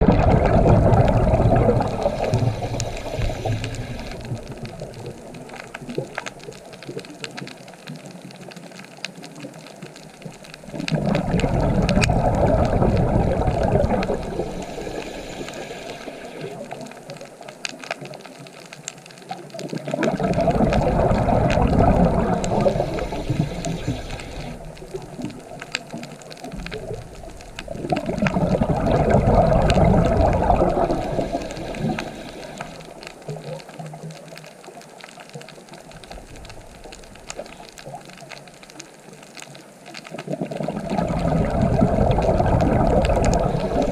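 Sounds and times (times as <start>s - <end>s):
sea waves breaking: 0.0s - 6.3s, 10.5s - 17.0s, 19.9s - 33.2s, 40.7s - 43.9s.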